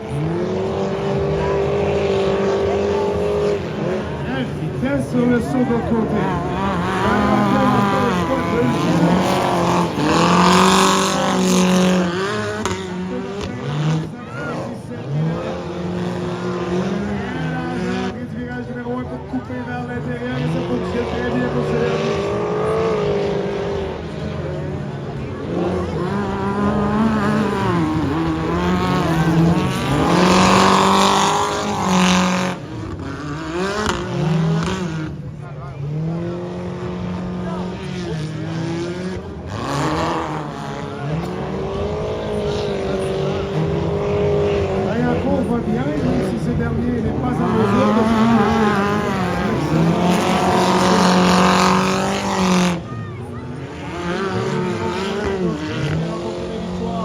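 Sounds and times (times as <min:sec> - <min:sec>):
racing buggy engines revving: 0:00.0 - 0:57.0.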